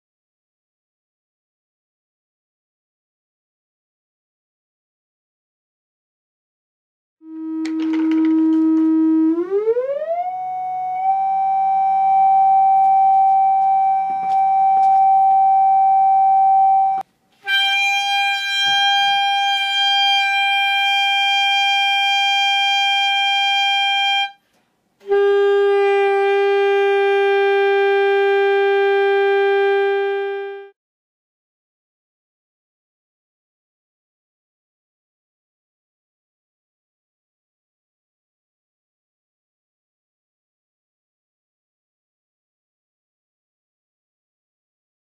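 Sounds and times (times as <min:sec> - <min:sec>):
saxophone long held notes: 0:07.2 - 0:24.4, 0:25.0 - 0:30.8.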